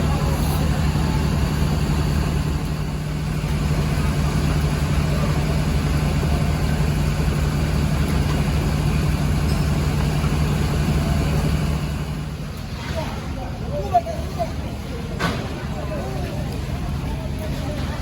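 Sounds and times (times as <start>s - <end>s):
boat engine running: 0.0s - 12.8s.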